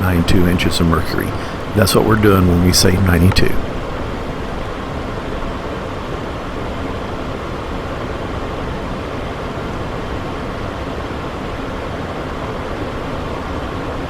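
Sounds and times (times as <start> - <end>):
jet cabin airflow and engines: 0.0 - 4.7.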